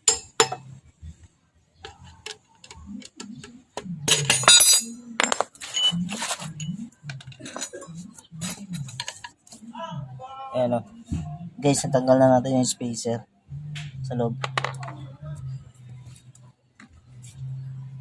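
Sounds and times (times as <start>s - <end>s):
metal tools knocking on wheel hub: 0.0s - 0.6s, 4.1s - 5.8s.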